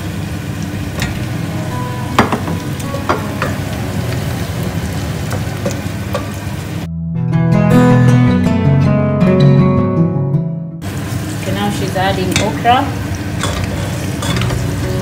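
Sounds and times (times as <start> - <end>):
onions sizzling in oil: 0.0 - 6.9, 10.8 - 15.0
acoustic guitar music: 1.1 - 10.8.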